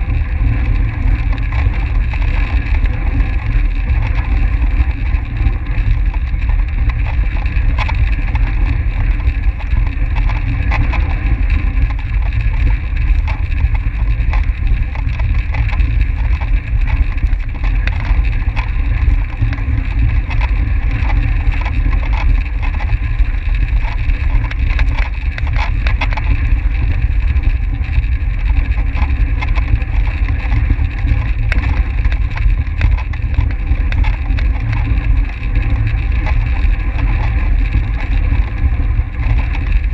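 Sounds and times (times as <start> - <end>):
bicycle whirring: 0.0 - 39.9
small ticks: 0.0 - 39.9
wind rushing on microphone: 0.0 - 39.9.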